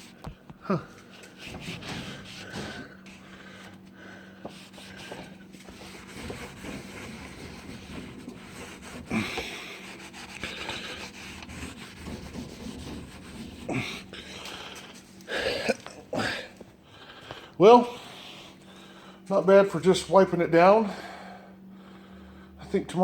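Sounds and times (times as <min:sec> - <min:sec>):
rag scrubbing metal door: 0:00.0 - 0:16.7.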